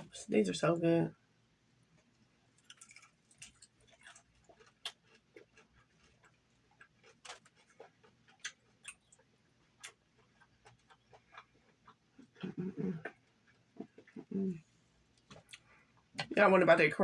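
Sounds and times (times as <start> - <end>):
chewing crunches: 2.0 - 14.2.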